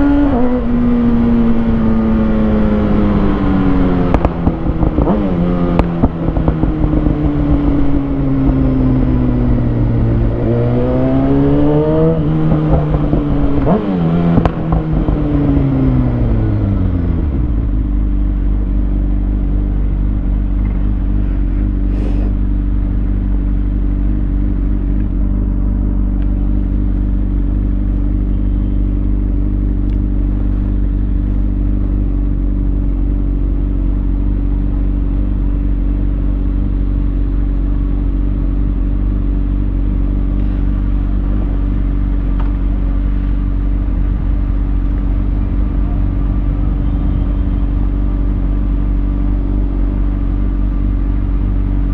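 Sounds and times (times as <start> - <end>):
motorcycle engine idling: 12.1 - 51.9.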